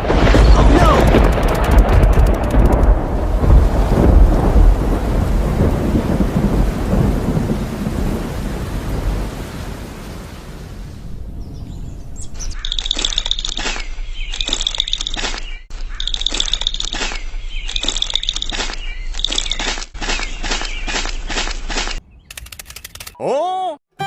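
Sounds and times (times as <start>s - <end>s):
high repeated chirping calls: 11.4s - 23.0s.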